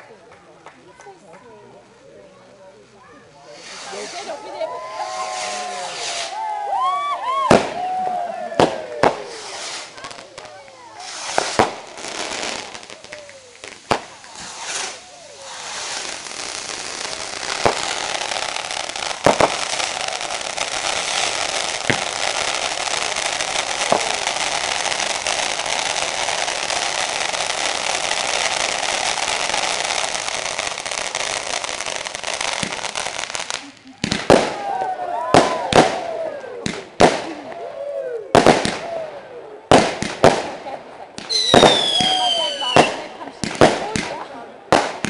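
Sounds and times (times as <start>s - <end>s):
firework fountains hissing and crackling: 0.0s - 45.0s
firework bangs: 3.5s - 37.6s, 38.3s - 45.0s.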